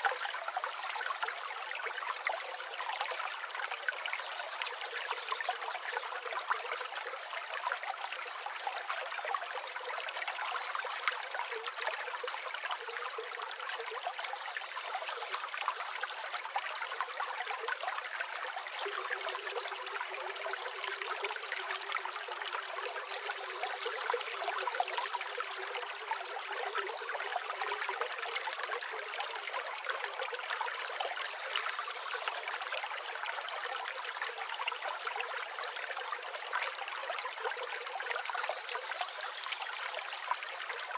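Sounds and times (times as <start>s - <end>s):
river babbling over stones: 12.4s - 38.0s.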